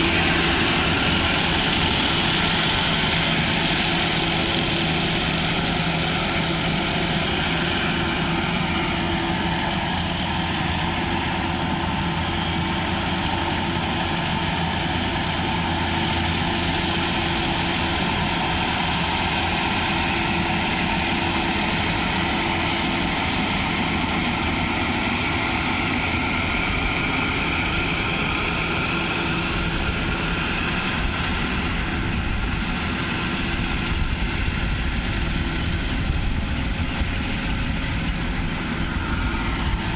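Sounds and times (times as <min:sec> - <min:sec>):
harvesting machine engine running: 0:00.0 - 0:39.9.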